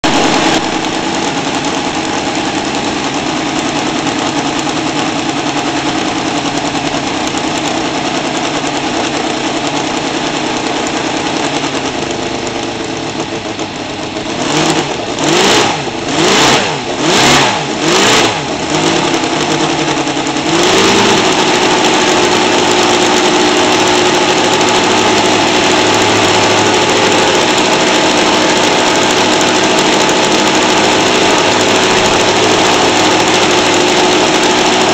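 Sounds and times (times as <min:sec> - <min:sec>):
engine throttle blips: 0:00.0 - 0:34.9
model aircraft engine running: 0:00.0 - 0:34.9.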